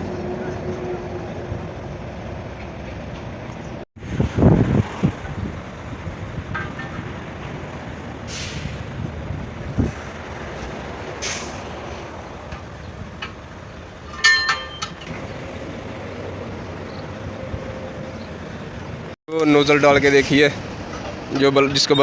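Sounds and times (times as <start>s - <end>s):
hissing air bursts: 8.2s - 9.0s
metal tools clinking: 14.0s - 15.1s.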